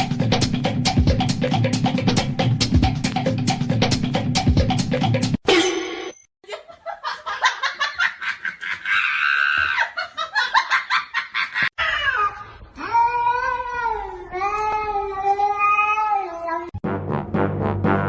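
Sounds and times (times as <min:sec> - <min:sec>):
person laughing hard: 0:06.4 - 0:12.2.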